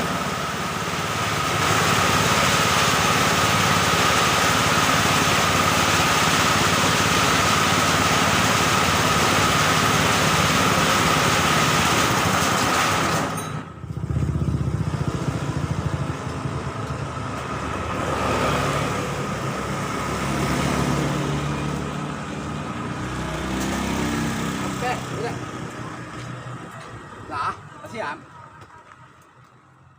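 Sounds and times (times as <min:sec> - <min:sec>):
lower uneven engine sound: 0:13.4 - 0:29.9.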